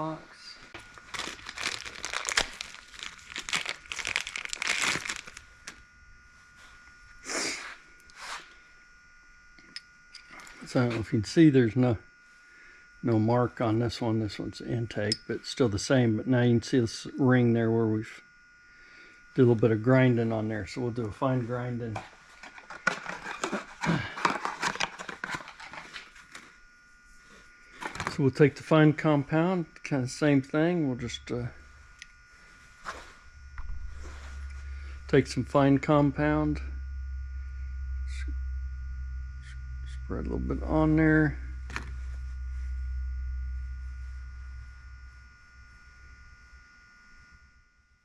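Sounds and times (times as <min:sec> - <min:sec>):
packaging crinkling and tearing: 0:00.8 - 0:05.8, 0:22.4 - 0:26.5.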